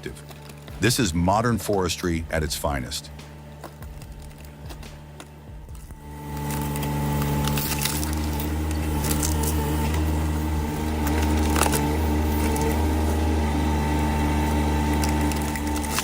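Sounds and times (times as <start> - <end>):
firewood machine engine hum: 0.0 - 16.0
wood cracking and splintering: 0.0 - 16.0.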